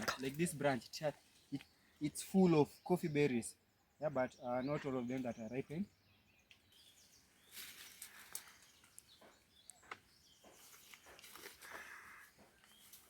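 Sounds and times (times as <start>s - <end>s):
faint bird chirps: 0.0s - 13.0s
leaves rustling: 6.8s - 9.1s, 10.5s - 13.0s.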